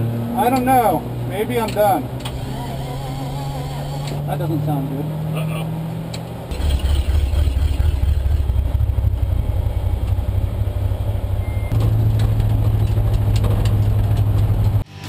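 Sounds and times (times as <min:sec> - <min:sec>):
car engine low drone: 0:00.0 - 0:15.0.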